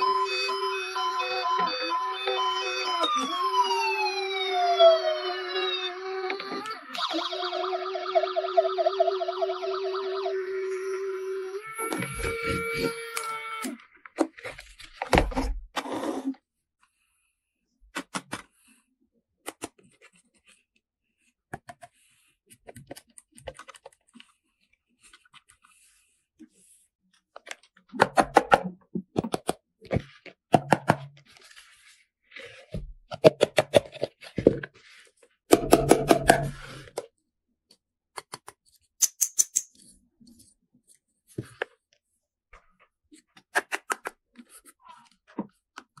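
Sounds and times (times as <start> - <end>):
plastic toy parts clicking and rattling: 38.2 - 39.9.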